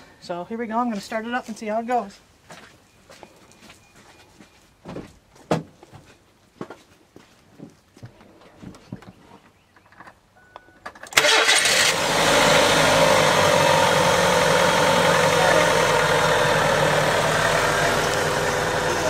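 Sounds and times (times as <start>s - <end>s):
car engine starting and idling: 11.1s - 19.0s.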